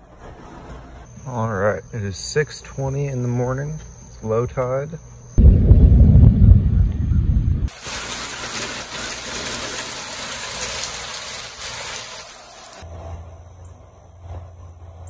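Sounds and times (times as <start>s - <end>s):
wind rumble on microphone: 5.4s - 7.7s
rain falling: 7.7s - 12.8s.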